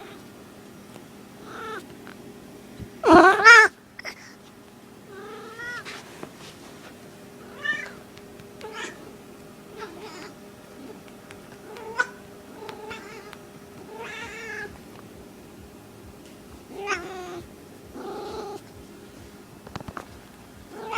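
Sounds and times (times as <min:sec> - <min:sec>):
cat meowing: 0:01.4 - 0:01.8, 0:03.0 - 0:04.2, 0:05.1 - 0:05.8, 0:07.5 - 0:08.0, 0:08.6 - 0:09.1, 0:09.7 - 0:11.0, 0:11.6 - 0:14.8, 0:16.7 - 0:18.6.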